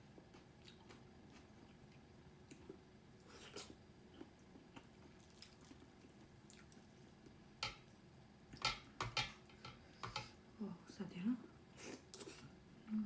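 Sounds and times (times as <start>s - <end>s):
wet chewing and mouth smacks: 0.2s - 7.4s.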